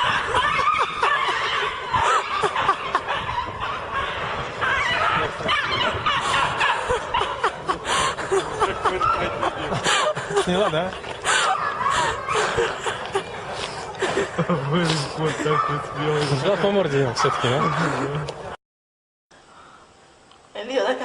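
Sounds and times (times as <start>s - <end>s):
laughter with high squeals: 0.0s - 3.7s, 4.6s - 16.5s.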